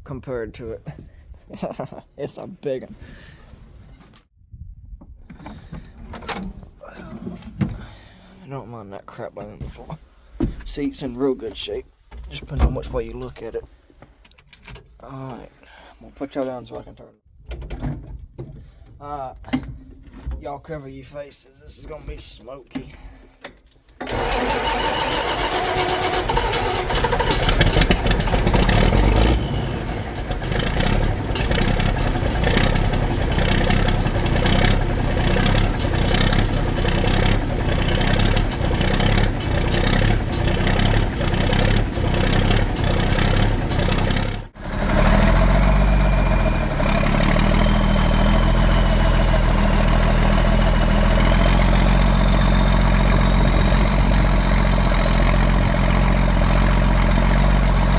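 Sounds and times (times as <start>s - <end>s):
diesel tractor engine running: 24.0s - 57.9s.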